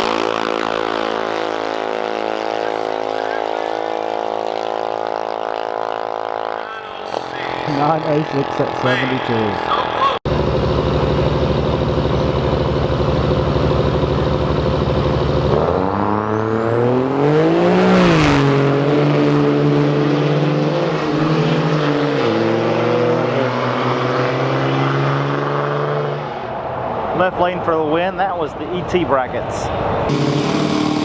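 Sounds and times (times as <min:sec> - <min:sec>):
pickup truck engine revving: 0:10.3 - 0:19.0, 0:30.1 - 0:31.0.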